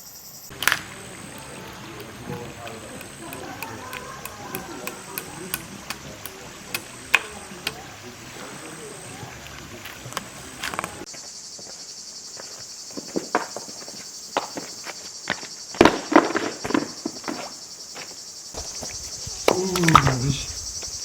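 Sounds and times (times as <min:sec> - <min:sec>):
crickets chirping: 0:00.0 - 0:21.0
footsteps: 0:00.5 - 0:21.0.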